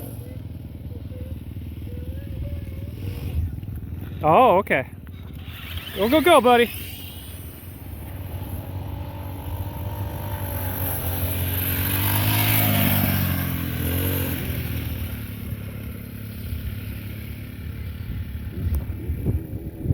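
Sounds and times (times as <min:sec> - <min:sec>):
dirt bike engine passing: 0:00.0 - 0:19.9.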